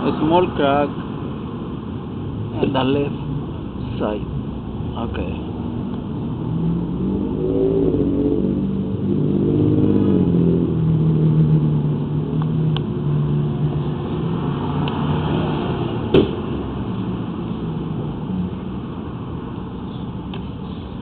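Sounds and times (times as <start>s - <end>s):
sharp knock: 16.1s - 16.4s.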